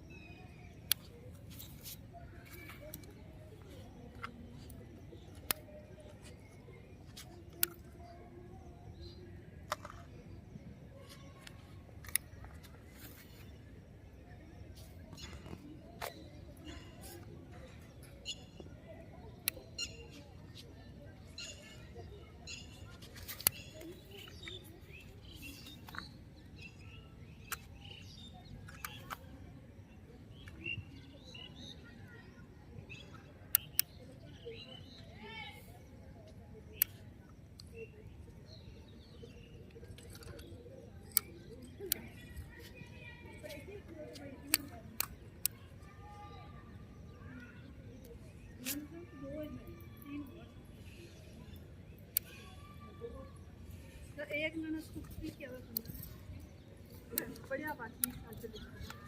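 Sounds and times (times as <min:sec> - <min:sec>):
faint distant voices: 0:00.0 - 0:59.0
birds chirping: 0:00.1 - 0:59.0
sharp clicks: 0:04.1 - 0:06.5, 0:07.1 - 0:08.0, 0:11.4 - 0:13.0, 0:27.4 - 0:29.3, 0:33.5 - 0:34.2, 0:36.7 - 0:37.8, 0:39.8 - 0:45.8, 0:54.9 - 0:59.0.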